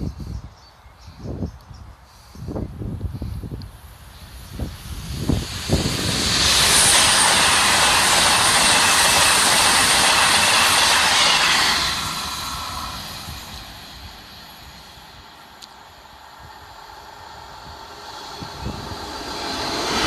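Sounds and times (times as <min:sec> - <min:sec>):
train wagons rushing past: 0:04.3 - 0:20.0.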